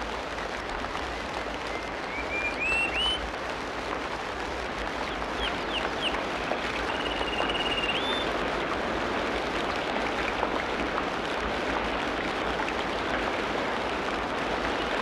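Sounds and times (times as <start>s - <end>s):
hiss of rain or running water: 0.0s - 15.0s
birds whistling: 1.6s - 3.2s, 6.9s - 8.3s.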